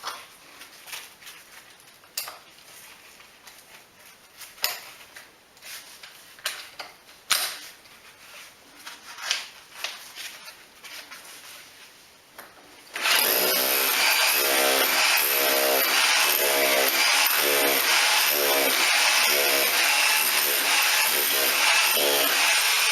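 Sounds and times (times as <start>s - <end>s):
power tool whining: 12.9s - 22.9s.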